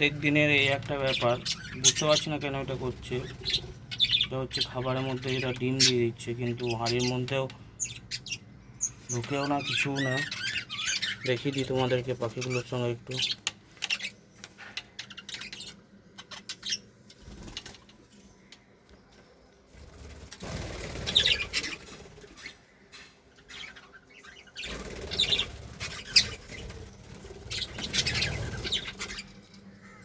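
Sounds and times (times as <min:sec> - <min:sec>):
bird chirps: 0:00.0 - 0:19.2, 0:20.9 - 0:30.0
birds flapping wings: 0:17.2 - 0:18.0, 0:19.7 - 0:22.5, 0:24.6 - 0:29.2.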